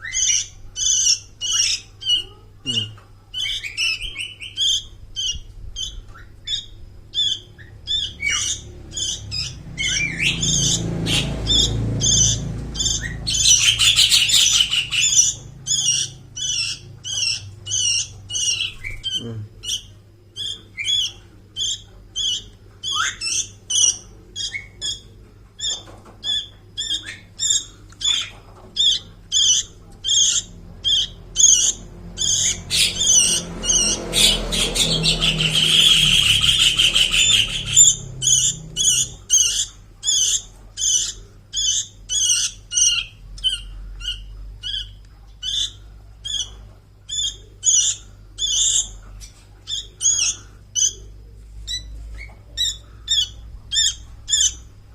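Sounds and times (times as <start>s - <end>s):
bird chick begging calls: 7.2s - 19.8s, 26.8s - 43.6s
rapid harsh chick chatter: 7.2s - 25.2s, 25.8s - 44.8s.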